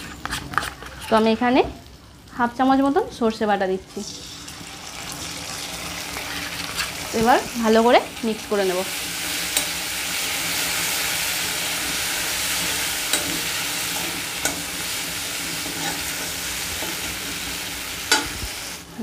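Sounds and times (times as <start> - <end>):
metal spatula stirring and scraping: 0.0 - 1.4, 6.0 - 18.8
paste sizzling in oil: 3.6 - 19.0.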